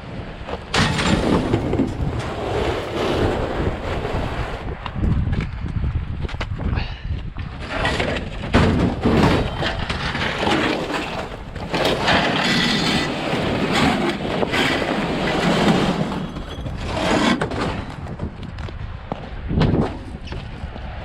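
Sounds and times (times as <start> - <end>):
scrap metal clattering: 0.7 - 3.0, 7.7 - 18.0.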